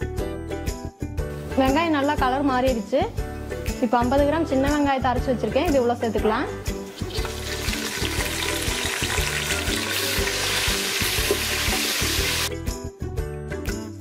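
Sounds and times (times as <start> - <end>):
background music with steady beat: 0.0 - 14.0
paste sizzling in hot oil: 6.7 - 12.5.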